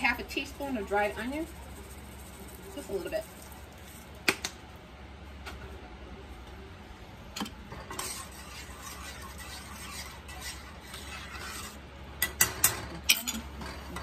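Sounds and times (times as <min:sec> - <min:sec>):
steady low hum: 0:00.0 - 0:14.0
spoon stirring in a pot: 0:07.4 - 0:14.0.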